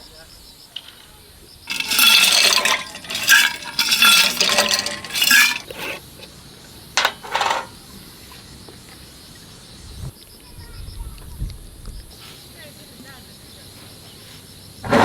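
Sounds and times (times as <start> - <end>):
dishes and cutlery clinking: 1.7 - 6.3, 7.0 - 7.8.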